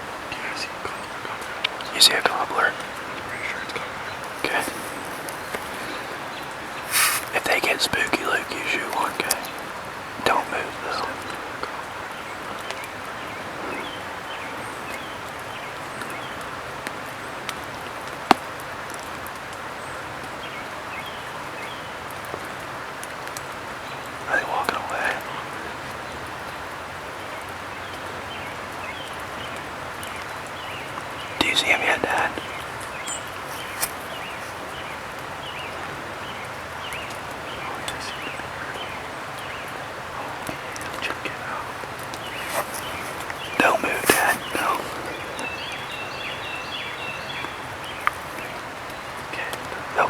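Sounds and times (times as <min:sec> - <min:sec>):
small birds chirping: 0:00.0 - 0:18.6, 0:19.7 - 0:50.0
steady hiss of wet woods: 0:00.0 - 0:50.0
faint ticks: 0:00.3 - 0:14.1, 0:28.7 - 0:45.9, 0:47.4 - 0:50.0.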